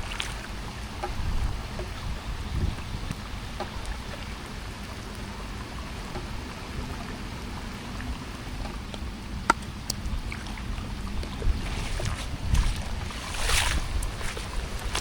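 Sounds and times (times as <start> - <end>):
steady rain falling: 0.0 - 15.0
water dripping: 8.6 - 15.0.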